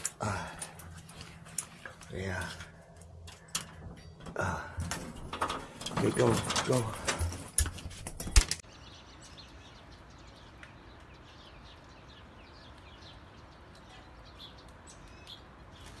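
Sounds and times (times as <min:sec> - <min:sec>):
faint birdsong chirps: 0:08.2 - 0:16.0.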